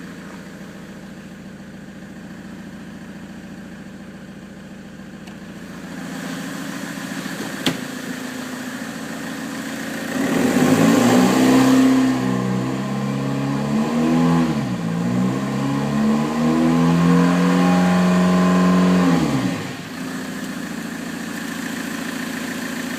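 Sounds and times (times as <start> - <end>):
diesel engine idling and revving: 0.0 - 22.9.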